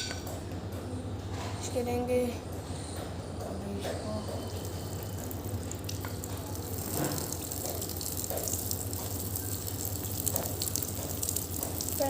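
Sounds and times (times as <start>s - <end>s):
tap water running and splashing: 4.5s - 12.0s.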